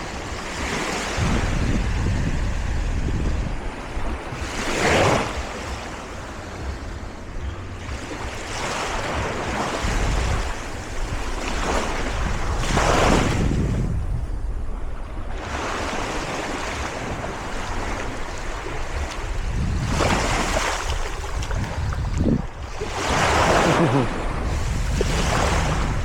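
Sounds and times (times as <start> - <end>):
wind buffeting microphone: 0.0 - 26.0
ocean surf breaking: 14.8 - 26.0.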